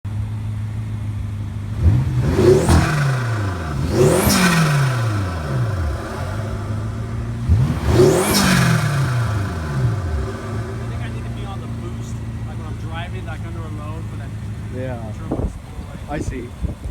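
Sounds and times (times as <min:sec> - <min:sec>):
car engine idling and revving: 0:00.1 - 0:16.9.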